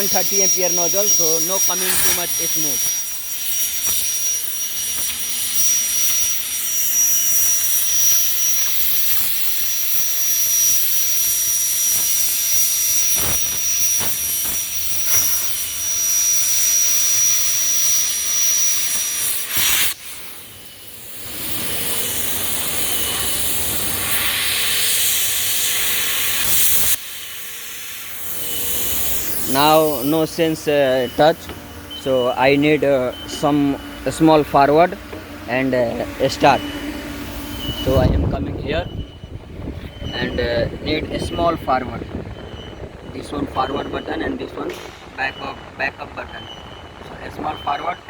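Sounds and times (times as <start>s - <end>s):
plasma cutter hissing: 0.0s - 48.0s
thin high whine: 0.0s - 48.0s.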